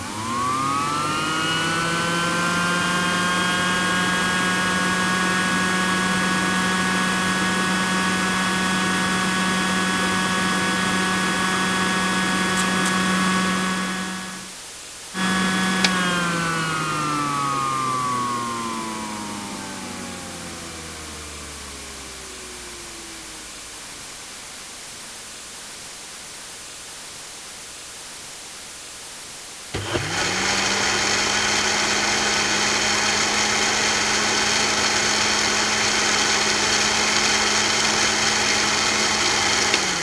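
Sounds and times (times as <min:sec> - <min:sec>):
appliance motor whirring: 0:00.0 - 0:14.5, 0:15.2 - 0:23.4, 0:29.8 - 0:40.0
appliance switch click: 0:15.7 - 0:16.2
faint hiss: 0:23.7 - 0:29.8.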